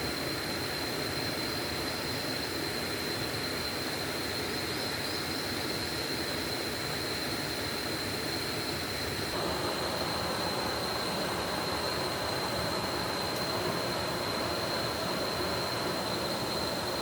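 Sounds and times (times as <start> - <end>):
high whine: 9.4 - 17.0
stream rushing: 9.4 - 17.0.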